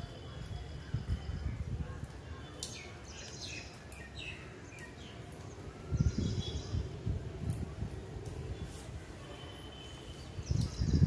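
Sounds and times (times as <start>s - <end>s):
wind buffeting microphone: 0.4s - 2.4s, 5.4s - 9.2s, 10.1s - 11.0s
birds chirping: 2.4s - 7.0s.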